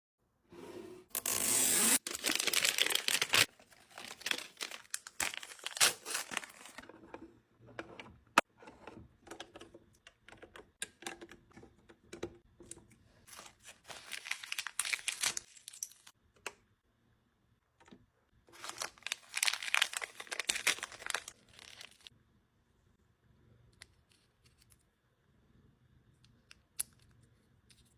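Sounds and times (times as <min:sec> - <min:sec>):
plastic packaging crinkling and tearing: 0:02.0 - 0:06.8, 0:13.3 - 0:16.1, 0:18.5 - 0:22.1.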